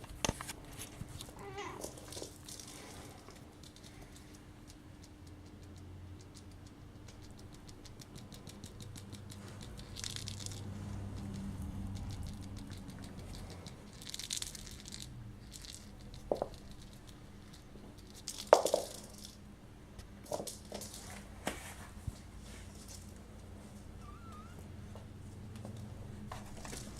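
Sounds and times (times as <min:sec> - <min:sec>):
kittens rustling and crunching: 0:00.0 - 0:19.4, 0:20.0 - 0:26.9
low steady hum: 0:00.0 - 0:26.9
kitten mews: 0:24.0 - 0:24.6.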